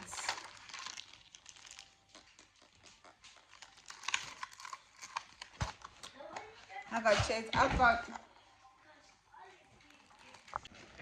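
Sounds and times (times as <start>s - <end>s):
plastic packaging crinkling: 0.0s - 7.3s, 9.7s - 11.0s.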